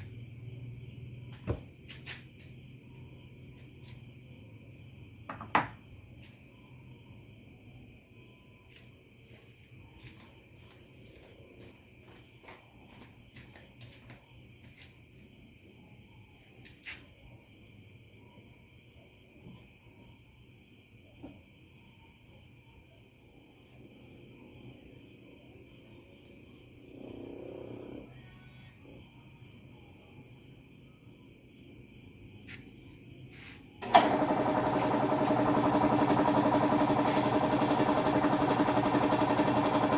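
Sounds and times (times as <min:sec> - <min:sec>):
crickets chirping: 0:00.0 - 0:39.9
motor running loudly: 0:33.8 - 0:39.9.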